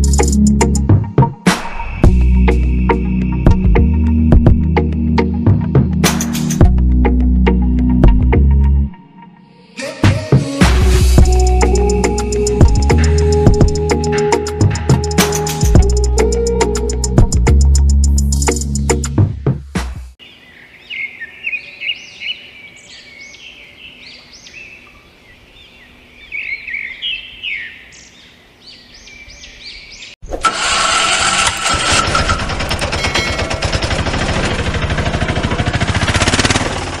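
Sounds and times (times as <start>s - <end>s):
birds chirping: 20.2s - 30.2s
fast-pulsing mechanical rattle: 30.4s - 37.0s.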